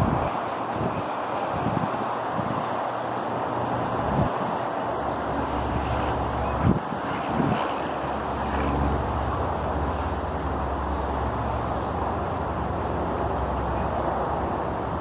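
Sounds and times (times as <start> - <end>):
jet engine rushing: 0.0 - 1.8.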